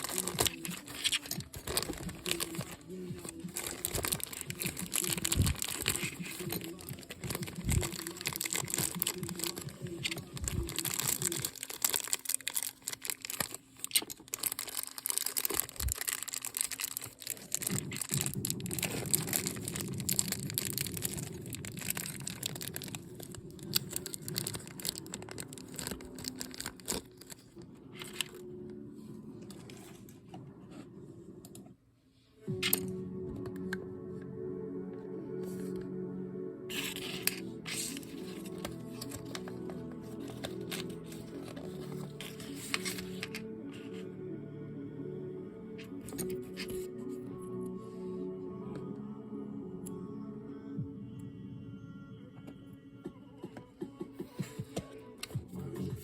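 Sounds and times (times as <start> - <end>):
packaging crinkling and rustling: 0.0 - 28.5, 36.7 - 44.0
music: 0.0 - 56.0.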